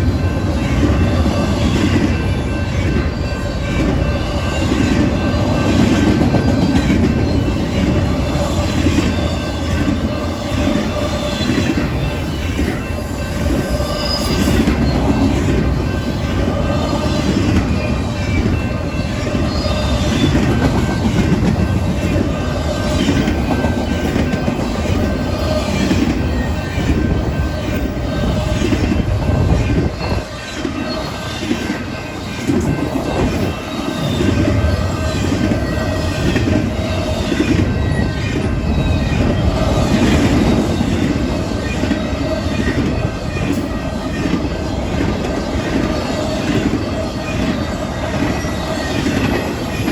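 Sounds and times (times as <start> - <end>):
freight train rumbling: 0.0 - 49.9
thin wheel squeal: 13.8 - 15.0.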